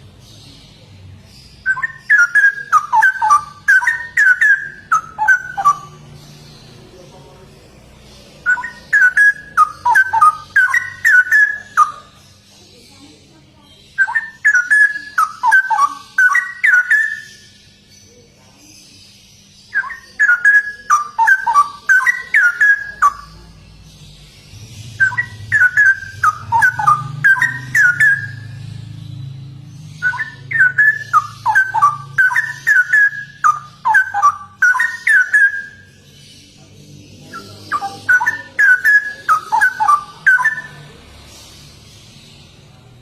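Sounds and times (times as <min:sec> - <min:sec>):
bird singing bubbling whistled song: 0:01.5 - 0:06.4, 0:08.4 - 0:12.4, 0:13.9 - 0:17.9, 0:19.6 - 0:36.1, 0:37.2 - 0:40.9.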